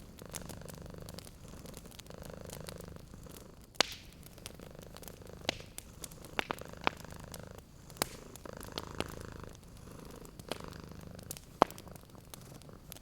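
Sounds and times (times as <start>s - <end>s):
cat purring: 0.0s - 13.0s
wood fire crackling and popping: 0.0s - 13.0s.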